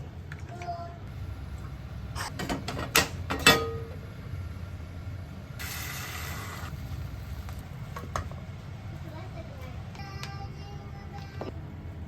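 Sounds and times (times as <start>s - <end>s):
hissing: 5.5s - 7.8s.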